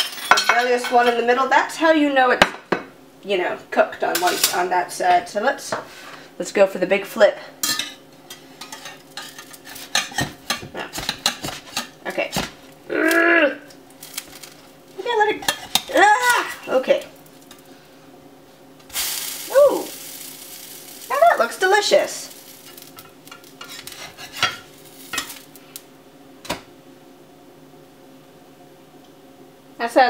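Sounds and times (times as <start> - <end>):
pancake sizzling in pan: 13.8 - 14.8, 18.8 - 25.9
metal spatula scraping frying pan: 22.4 - 25.4.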